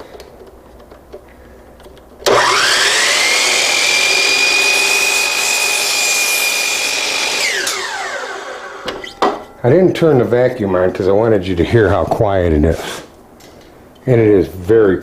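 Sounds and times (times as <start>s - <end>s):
miter saw whining: 2.3s - 9.4s
saw blade cutting board: 2.3s - 9.4s.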